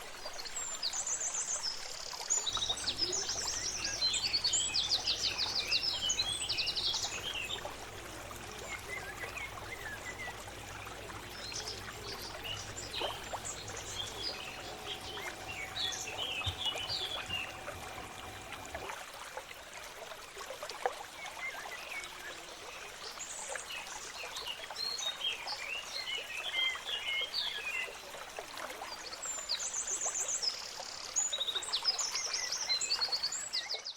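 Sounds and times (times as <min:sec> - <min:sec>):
birds chirping and trilling: 0:02.5 - 0:18.8
faint steady tone: 0:02.5 - 0:19.0
low hum: 0:02.5 - 0:19.0.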